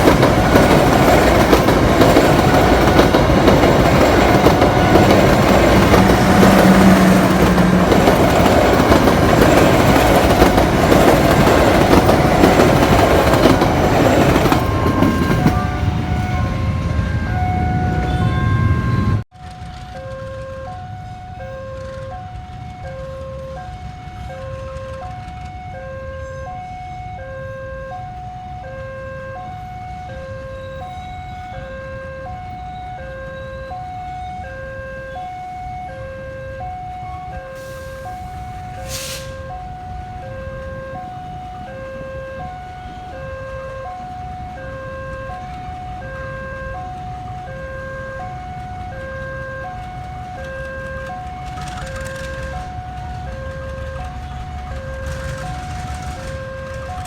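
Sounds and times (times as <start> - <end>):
level crossing two-tone alarm: 0.0 - 19.2, 20.0 - 57.0
two-note electronic warning alarm: 14.0 - 19.2
short hiss: 37.6 - 39.4.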